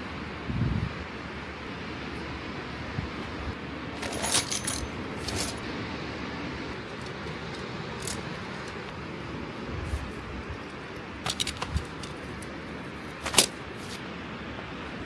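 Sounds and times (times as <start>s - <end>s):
metallic clinks of camping gear: 3.9s - 5.8s, 6.7s - 8.9s, 10.6s - 14.0s.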